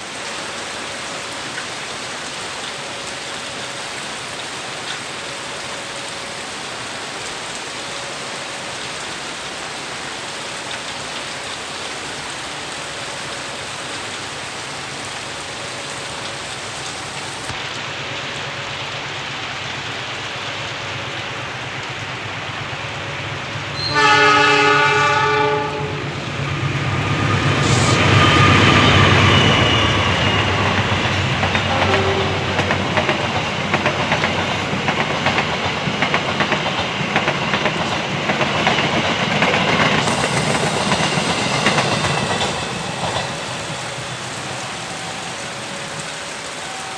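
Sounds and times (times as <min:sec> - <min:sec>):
steady rain: 0:00.0 - 0:46.9
train passing with wheel clatter: 0:00.0 - 0:46.9
locomotive horn: 0:23.8 - 0:26.3, 0:27.5 - 0:33.4.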